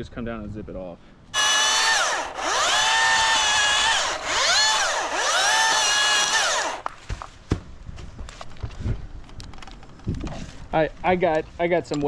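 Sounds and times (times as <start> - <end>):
cordless chainsaw cutting wood: 1.4 - 6.9.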